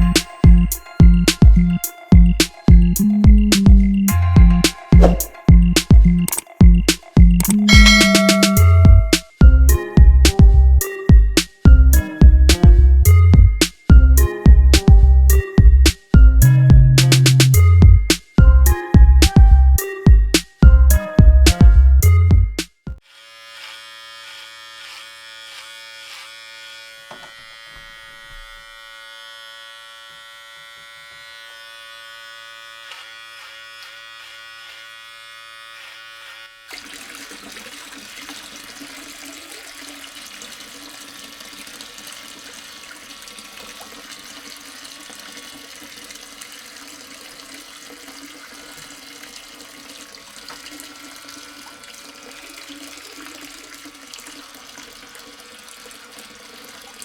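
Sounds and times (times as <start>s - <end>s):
water flowing and splashing: 0.0s - 9.4s, 36.7s - 57.0s
small electric motor whining: 23.0s - 36.7s.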